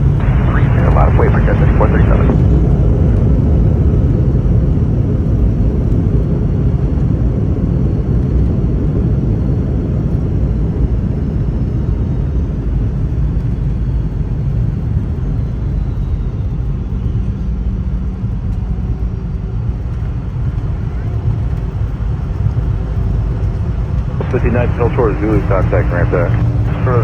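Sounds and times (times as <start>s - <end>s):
aircraft cabin rumble: 0.0s - 16.0s, 17.9s - 27.0s
faint high whine: 0.1s - 2.8s, 24.0s - 27.0s.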